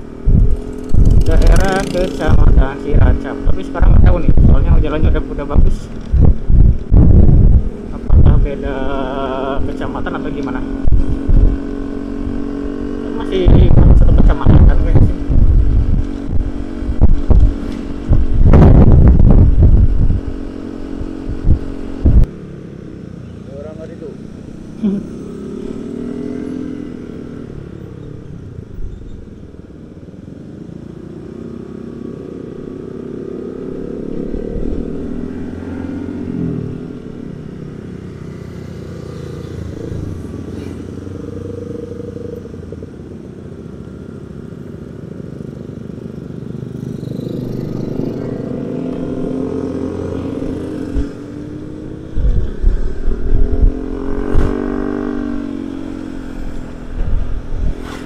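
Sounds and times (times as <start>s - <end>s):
scooter and motorcycle engines: 0.0s - 58.0s
low thumps on microphone: 5.6s - 8.4s, 13.5s - 20.2s, 21.3s - 22.3s, 52.2s - 54.8s.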